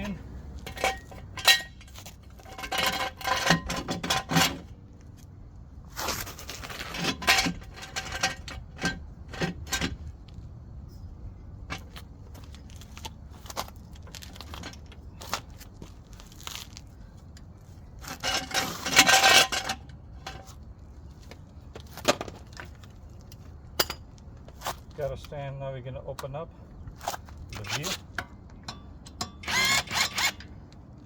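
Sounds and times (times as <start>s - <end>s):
metal tools clinking and scraping: 0.0s - 4.8s, 6.3s - 10.0s, 17.9s - 20.6s.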